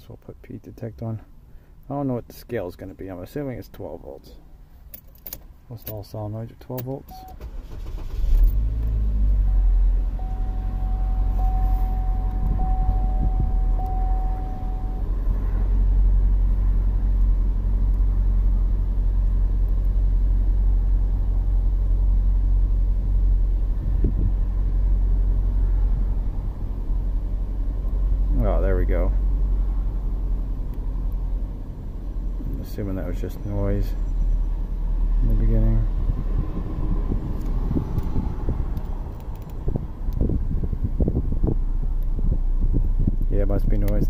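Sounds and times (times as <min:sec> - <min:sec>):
car engine idling: 0:06.9 - 0:36.2
steady high tone: 0:09.4 - 0:15.4.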